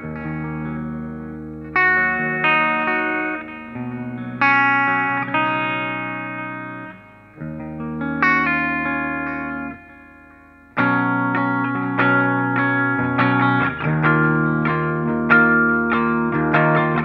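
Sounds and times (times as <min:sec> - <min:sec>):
guitar chords ringing out: 0:00.0 - 0:17.0.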